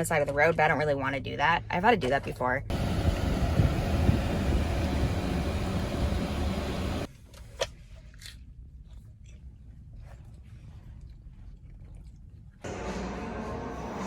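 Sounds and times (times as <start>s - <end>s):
road and engine noise inside car: 2.7s - 7.1s.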